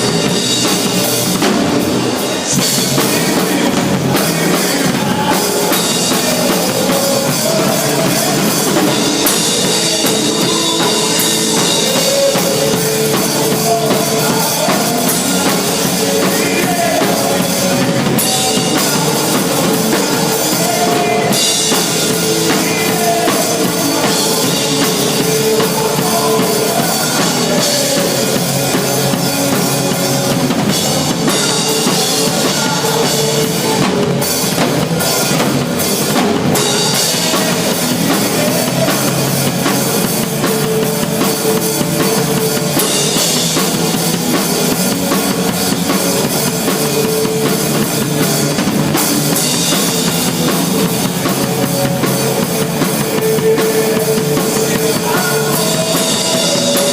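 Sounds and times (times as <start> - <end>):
rock music with drum beat: 0.0 - 56.9.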